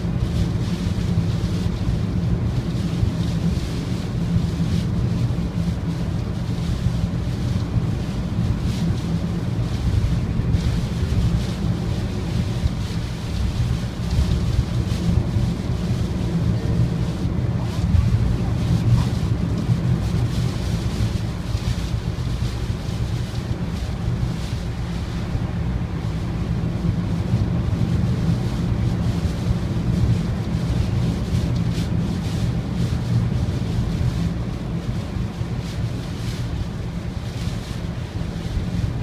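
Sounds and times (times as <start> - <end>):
strong wind on microphone: 7.1 - 37.4.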